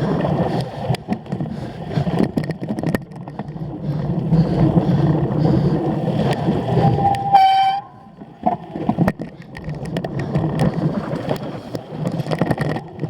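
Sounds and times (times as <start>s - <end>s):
bike rattling over rough ground: 0.0s - 13.0s
wind and tyre noise: 0.0s - 13.0s
high-pitched squealing tone: 6.8s - 8.1s.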